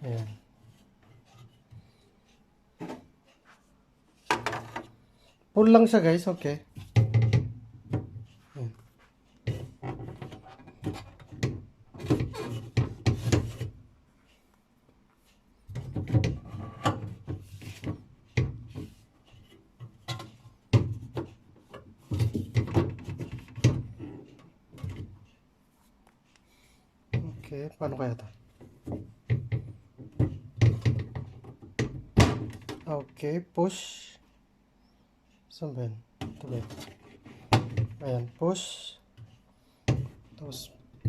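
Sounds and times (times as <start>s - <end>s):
plastic fittings knocking and clacking: 4.3s - 4.9s, 6.7s - 8.3s, 9.4s - 13.7s, 15.7s - 25.2s, 28.6s - 32.9s, 39.9s - 41.0s.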